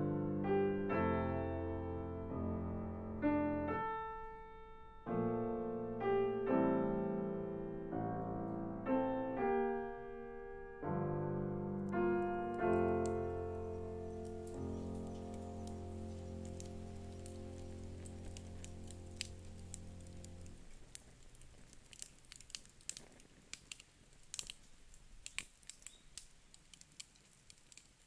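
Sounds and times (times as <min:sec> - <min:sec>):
slow solo piano: 0:00.0 - 0:21.2
faint crackling patter: 0:11.6 - 0:28.0.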